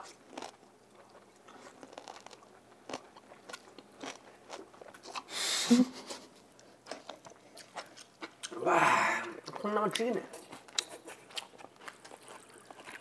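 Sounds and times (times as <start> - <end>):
wet biting and chewing: 0.0 - 5.3, 9.2 - 13.0.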